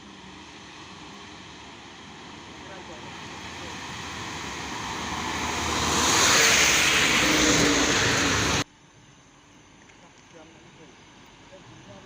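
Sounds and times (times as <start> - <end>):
truck passing close by: 0.0 - 8.6.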